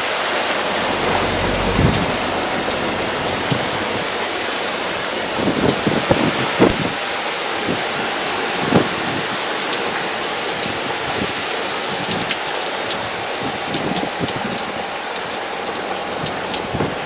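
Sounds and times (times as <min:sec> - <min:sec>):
heavy rain pattering: 0:00.0 - 0:17.0.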